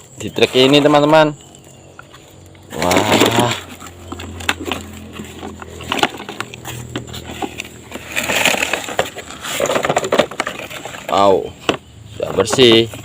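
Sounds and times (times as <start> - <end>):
rushing scrape: 2.7 - 11.5.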